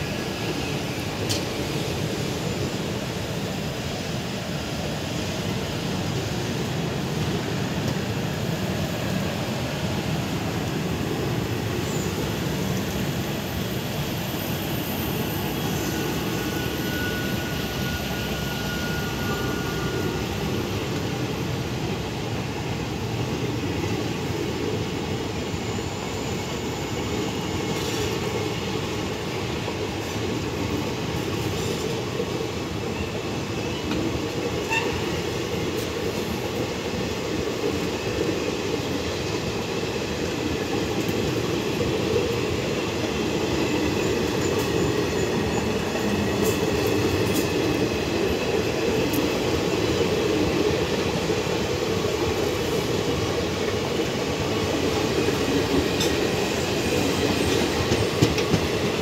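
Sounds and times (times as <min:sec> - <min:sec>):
train wheels rumbling on rails: 0:00.0 - 0:59.0
thin high squeal: 0:15.1 - 0:20.5.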